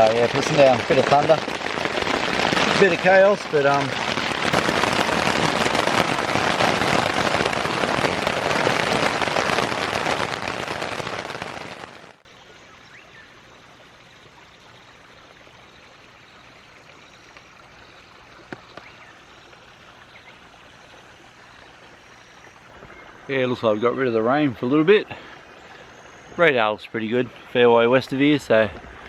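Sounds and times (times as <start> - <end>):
running creek water: 0.0 - 10.8, 12.2 - 29.0
heavy rain pelting down: 0.0 - 12.2.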